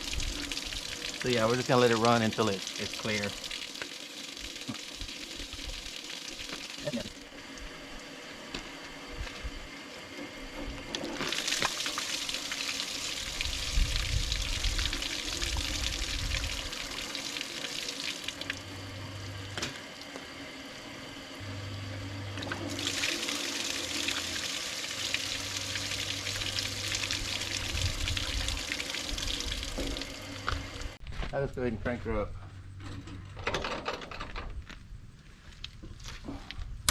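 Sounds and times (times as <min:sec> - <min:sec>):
water pouring out of hose: 0:00.0 - 0:08.2, 0:10.0 - 0:18.8, 0:22.4 - 0:31.0.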